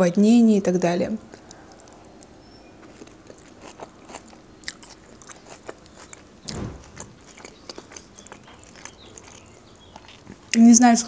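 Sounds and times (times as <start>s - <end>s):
lettuce crunching while chewing: 1.3s - 11.0s
deep thump: 6.5s - 7.2s.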